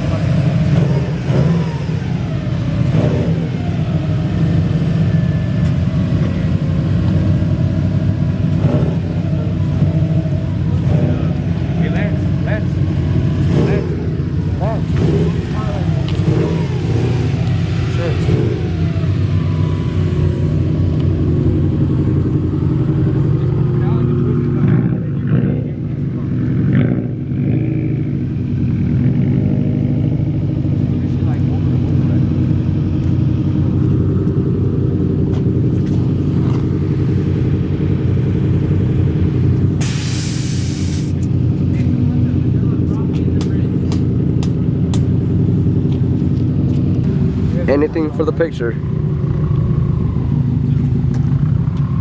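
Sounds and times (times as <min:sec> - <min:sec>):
car engine idling: 0:00.0 - 0:52.0
people talking: 0:10.7 - 0:12.9, 0:13.5 - 0:16.6, 0:17.8 - 0:18.7, 0:23.2 - 0:26.5, 0:30.8 - 0:32.6, 0:40.4 - 0:44.1, 0:47.4 - 0:48.9.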